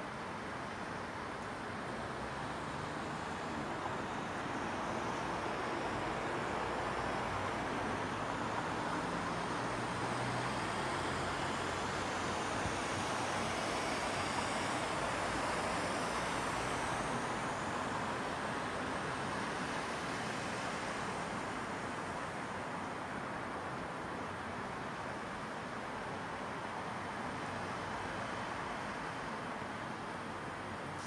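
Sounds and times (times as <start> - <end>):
distant traffic hiss: 0.0 - 31.0.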